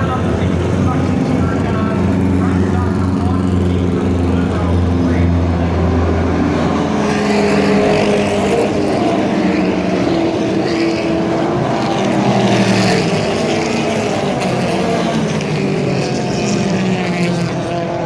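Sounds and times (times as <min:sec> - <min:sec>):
racing car engines revving: 0:00.0 - 0:18.0.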